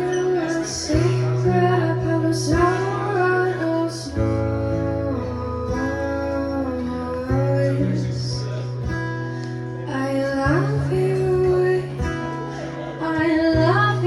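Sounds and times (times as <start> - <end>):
plucked acoustic guitar: 0.0 - 14.0.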